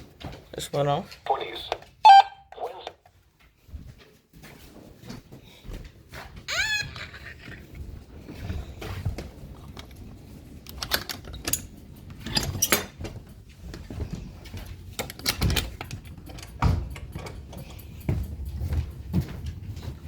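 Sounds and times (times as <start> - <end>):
radios being handled: 1.3 - 3.1.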